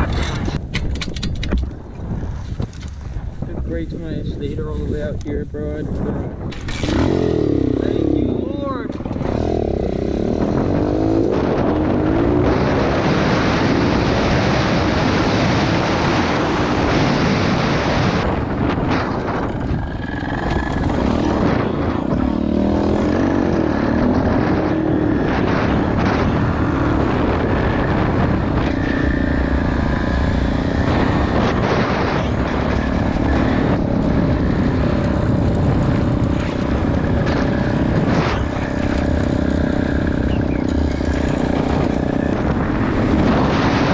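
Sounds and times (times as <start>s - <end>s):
pit bike engine revving: 6.4s - 43.9s.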